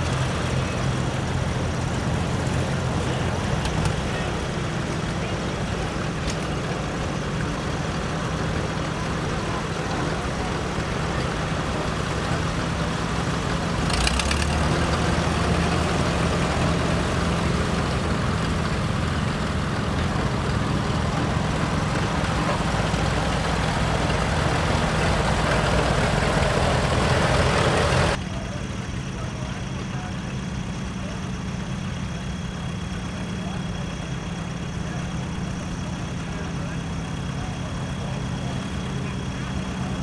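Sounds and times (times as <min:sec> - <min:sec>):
old tractor engines running: 0:00.0 - 0:40.0.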